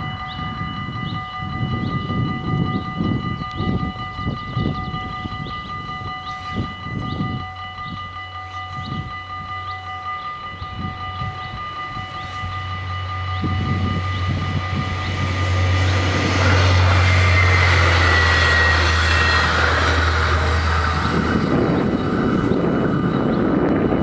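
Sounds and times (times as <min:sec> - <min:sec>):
diesel train engine and wheel rumble: 0:00.0 - 0:24.0
level-crossing bells ringing: 0:00.0 - 0:24.0
high wheel squeal: 0:11.4 - 0:23.6.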